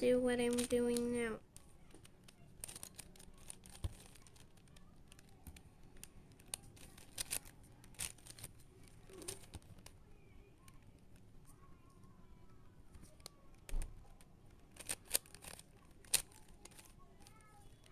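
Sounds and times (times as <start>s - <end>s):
puzzle cube clicking: 0.5s - 10.0s, 13.1s - 17.9s.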